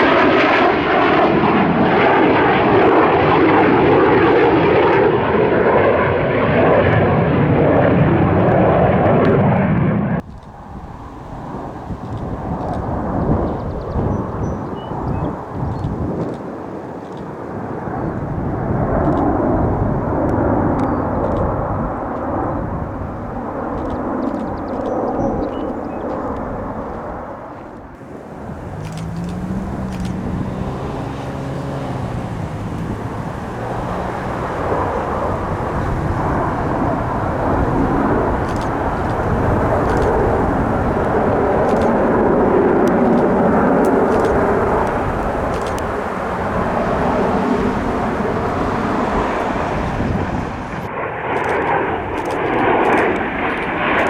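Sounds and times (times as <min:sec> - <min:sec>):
aircraft engine rumbling: 0:00.0 - 0:54.0
wavering hum: 0:28.0 - 0:52.0.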